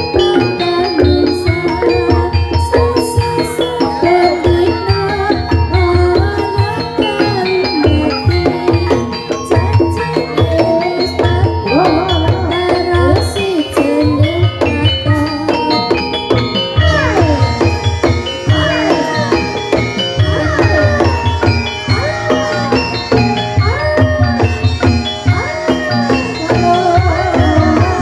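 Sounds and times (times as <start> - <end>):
metallophones ringing: 0.0 - 28.0.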